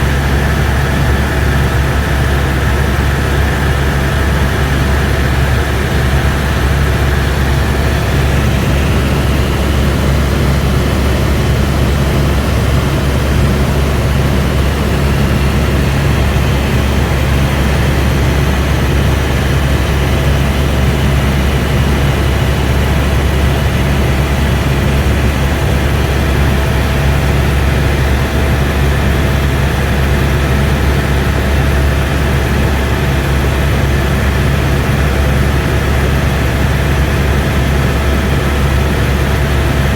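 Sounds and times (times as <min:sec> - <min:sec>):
helicopter engine and rotors drone: 0:00.0 - 0:39.9.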